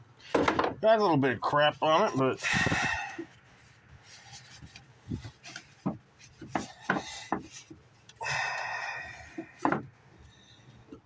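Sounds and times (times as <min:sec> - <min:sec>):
rubbing or scraping: 0:01.8 - 0:07.9
knocks and taps on air filter: 0:09.6 - 0:09.9.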